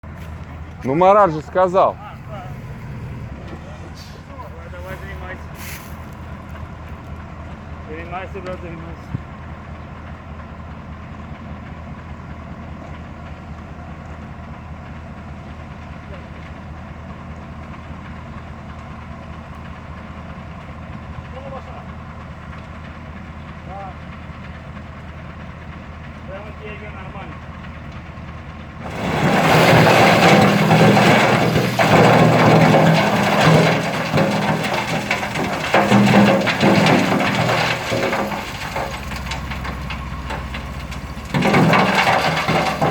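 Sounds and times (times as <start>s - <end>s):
construction machinery engine rumbling: 0.0s - 42.9s
dense rattling noise: 28.8s - 42.9s.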